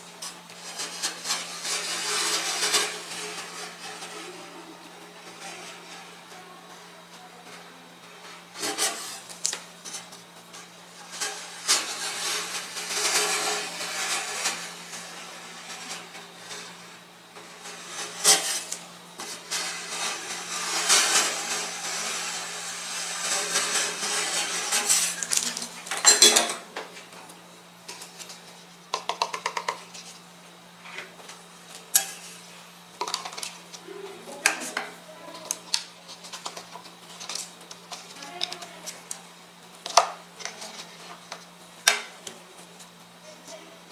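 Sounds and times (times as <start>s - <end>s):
metal spatulas scraping steel plate: 0.5s - 6.4s, 8.2s - 26.6s, 31.9s - 33.5s.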